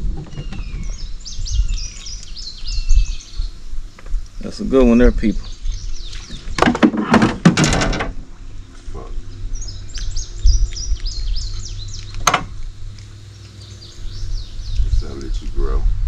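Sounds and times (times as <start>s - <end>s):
songbird chirping: 0.0s - 7.3s, 8.1s - 15.8s
low rumble: 7.7s - 13.2s.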